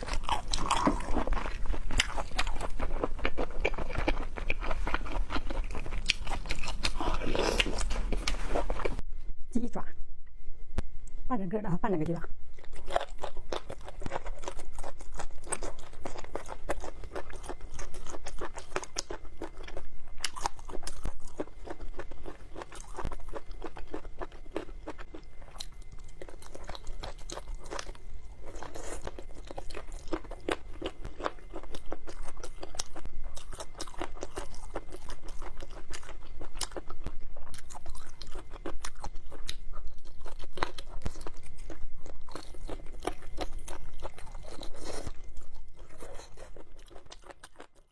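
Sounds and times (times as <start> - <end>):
person chewing crunchy food: 0.0 - 9.0, 12.5 - 47.9.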